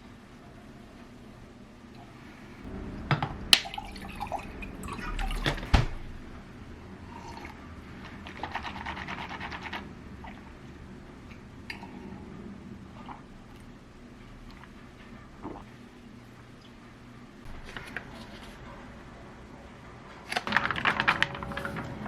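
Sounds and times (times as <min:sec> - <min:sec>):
liquid pouring or dripping: 0:03.0 - 0:05.8.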